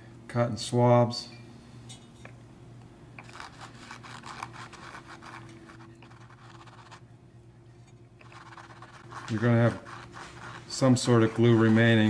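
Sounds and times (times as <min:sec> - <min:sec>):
low steady hum: 0:00.0 - 0:12.0
cotton swab scratching: 0:03.2 - 0:07.0, 0:08.2 - 0:12.0.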